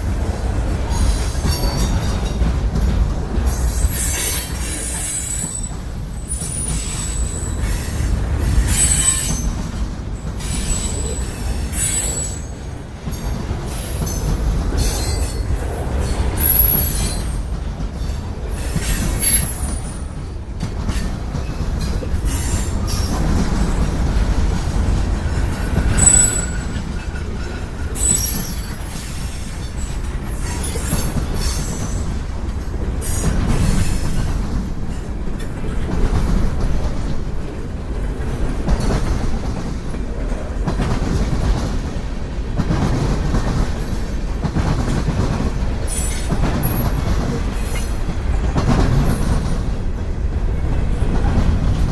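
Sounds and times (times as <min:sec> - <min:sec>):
freight train wheels rumbling: 0:00.0 - 0:51.9
wheels clacking over rail joints: 0:00.0 - 0:51.9
high-pitched wheel squeals: 0:08.6 - 0:09.6, 0:10.4 - 0:12.5, 0:25.9 - 0:26.8, 0:28.0 - 0:28.9.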